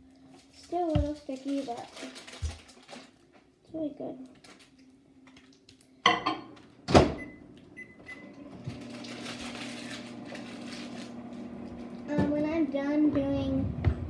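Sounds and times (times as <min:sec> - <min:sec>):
microwave humming: 0:06.1 - 0:14.0.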